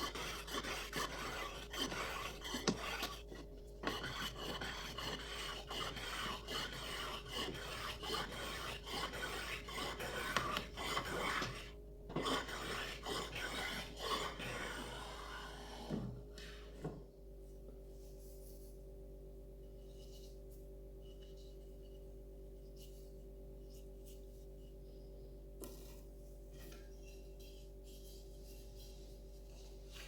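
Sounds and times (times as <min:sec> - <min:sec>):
rough abrading strokes on wood: 0:00.0 - 0:11.6.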